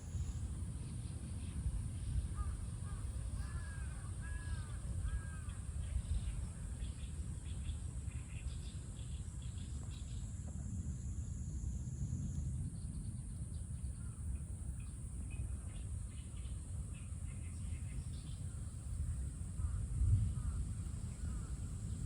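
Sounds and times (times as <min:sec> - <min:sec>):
crow cawing: 0:02.4 - 0:05.6.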